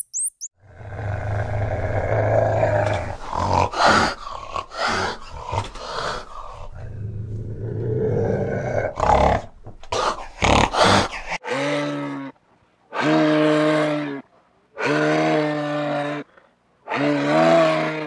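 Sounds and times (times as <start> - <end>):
animal grunting: 0.6 - 12.3
animal growling: 0.6 - 14.2, 16.9 - 18.0.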